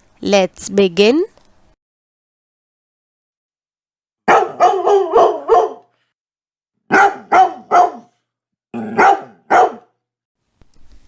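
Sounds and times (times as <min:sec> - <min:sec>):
dog barking: 0:04.3 - 0:05.9, 0:06.9 - 0:08.2, 0:08.8 - 0:10.0.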